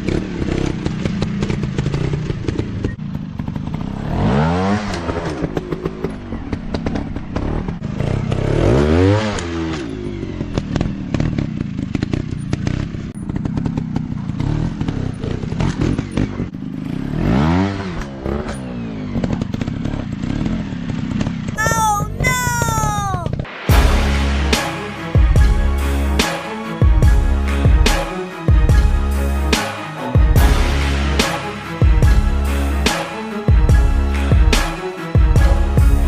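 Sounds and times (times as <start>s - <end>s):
engine clattering: 9.3s - 17.1s.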